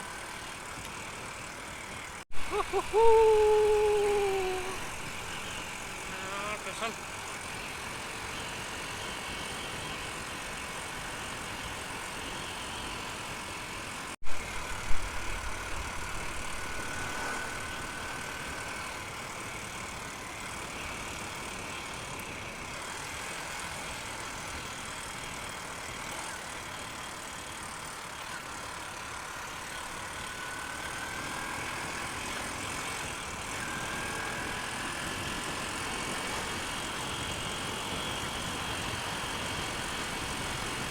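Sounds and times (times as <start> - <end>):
faint whine: 2.4 - 7.0, 14.3 - 19.0
motorcycle engine cruising: 14.0 - 19.5.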